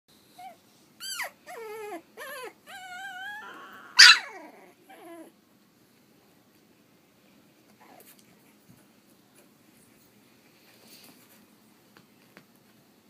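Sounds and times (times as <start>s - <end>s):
puppy whimpering: 0.4s - 5.4s.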